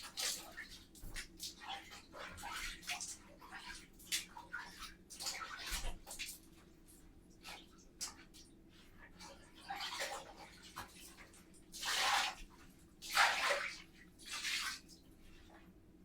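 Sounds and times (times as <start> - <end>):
bathtub scrubbing swishes: 7.4 - 15.6.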